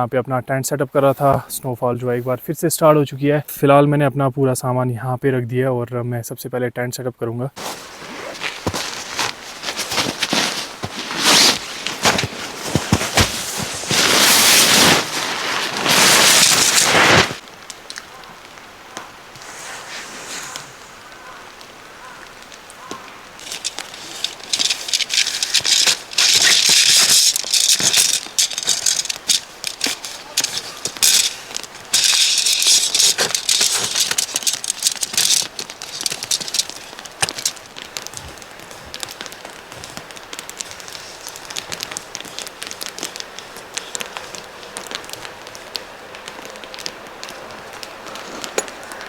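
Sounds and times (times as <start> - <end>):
tent fabric crinkling and rustling: 7.6 - 49.0.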